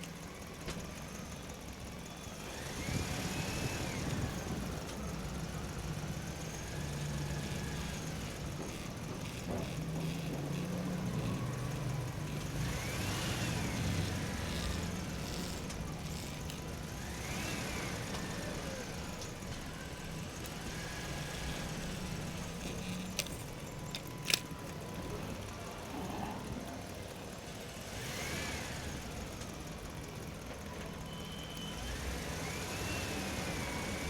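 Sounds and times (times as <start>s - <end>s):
motor humming: 2.3s - 30.8s
sharp clicks: 20.4s - 25.5s.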